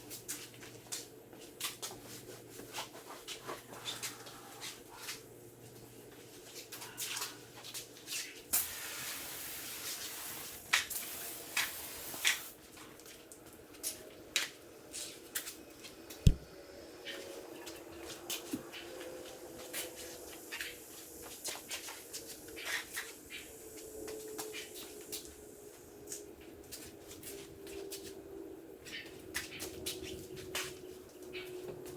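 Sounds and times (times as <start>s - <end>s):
hiss: 8.5s - 12.6s, 19.3s - 25.9s
sharp knock: 16.3s - 16.5s.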